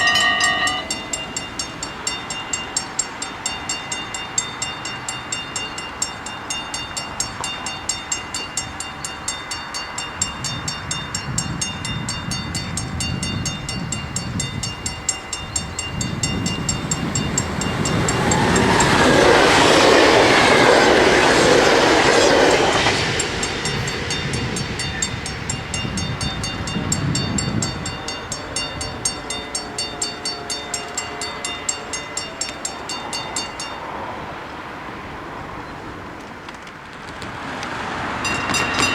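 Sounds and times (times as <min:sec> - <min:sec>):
level crossing bells ringing: 0:00.0 - 0:34.1, 0:38.2 - 0:38.9
wheels beating over rail joints: 0:00.0 - 0:34.1, 0:36.2 - 0:38.9
train passing: 0:00.0 - 0:38.9.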